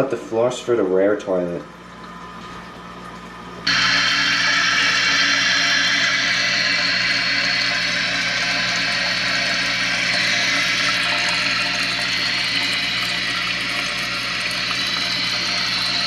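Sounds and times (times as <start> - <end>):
toilet tank refilling hiss: 3.6 - 16.0.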